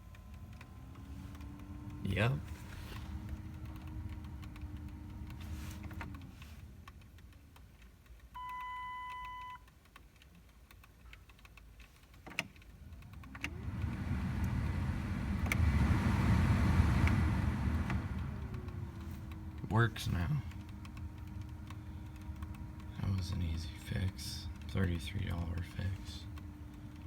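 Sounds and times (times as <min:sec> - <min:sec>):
heater blower motor hum: 0:00.0 - 0:06.8, 0:12.8 - 0:27.0
clicks: 0:00.0 - 0:27.0.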